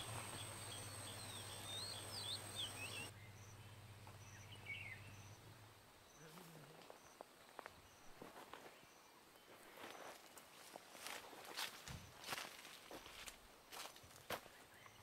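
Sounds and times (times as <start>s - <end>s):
bird chirps: 0.0s - 10.1s.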